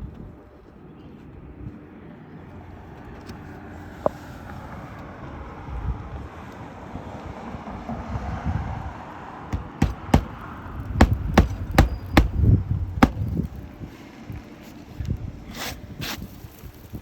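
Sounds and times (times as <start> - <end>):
sharp knocks on shingles: 9.6 - 13.5.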